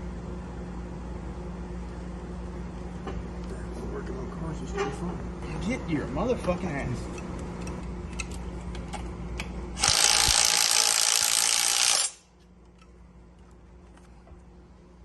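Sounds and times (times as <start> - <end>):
power tool running: 9.8 - 12.2.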